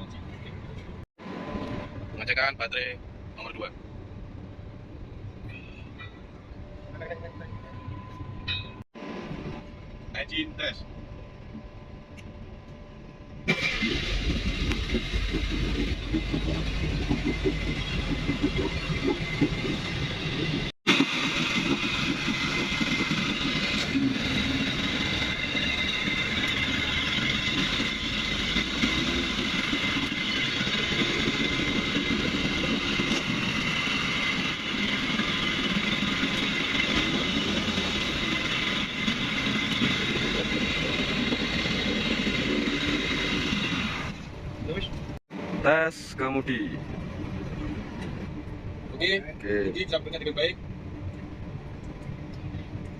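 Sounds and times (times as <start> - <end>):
boat engine running: 13.4 - 52.9.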